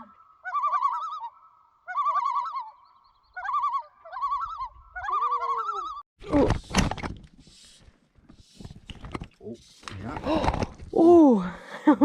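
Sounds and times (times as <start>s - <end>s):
bird warbling call: 0.0s - 6.0s.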